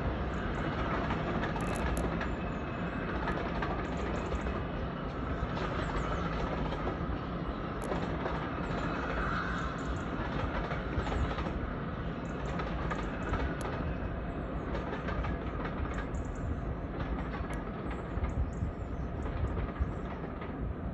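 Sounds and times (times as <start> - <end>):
train rumbling on rails: 0.0 - 20.9
wheels clicking over rail joints: 0.6 - 2.4, 7.8 - 11.6, 12.4 - 14.0, 14.6 - 18.6.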